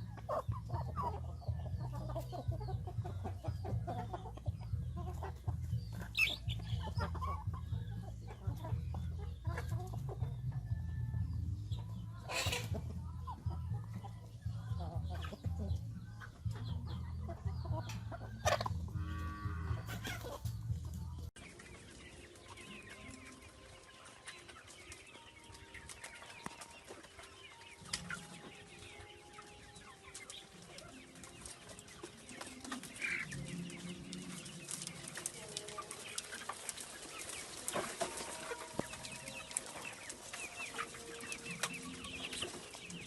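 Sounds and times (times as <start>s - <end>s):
chickens clucking: 0.0s - 43.0s.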